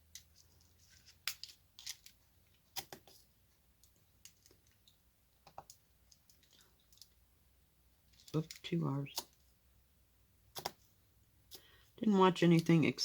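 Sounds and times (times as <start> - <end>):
small sharp clicks and taps: 3.8 - 7.2, 10.5 - 10.8.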